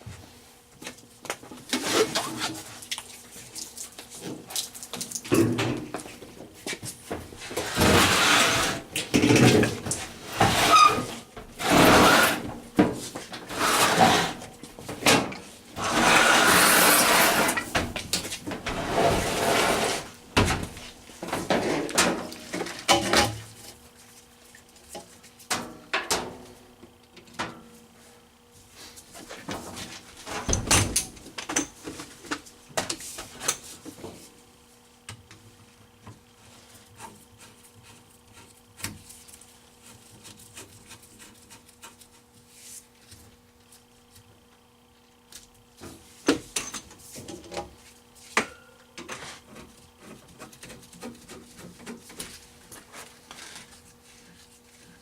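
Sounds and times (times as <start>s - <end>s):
rough scraping and rubbing: 7.5s - 8.9s, 10.0s - 12.5s, 13.4s - 14.4s, 15.8s - 17.7s, 18.7s - 20.2s.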